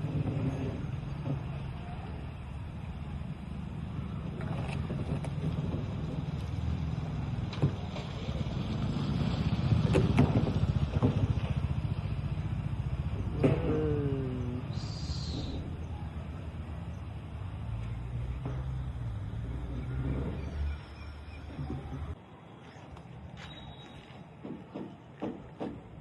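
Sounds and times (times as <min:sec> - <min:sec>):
sharp knocks and clunks: 0:09.8 - 0:11.7, 0:13.2 - 0:13.8, 0:24.4 - 0:26.0.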